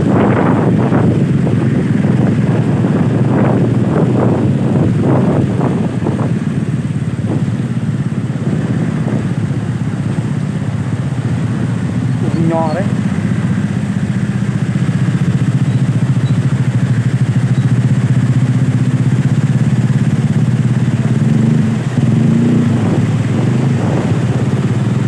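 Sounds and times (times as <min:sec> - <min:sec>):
small engine running: 0:08.1 - 0:25.0.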